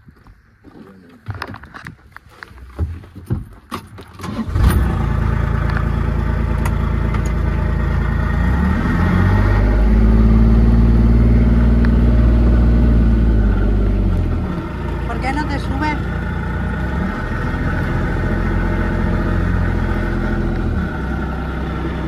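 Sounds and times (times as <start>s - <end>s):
vehicle engine running: 4.4s - 22.0s.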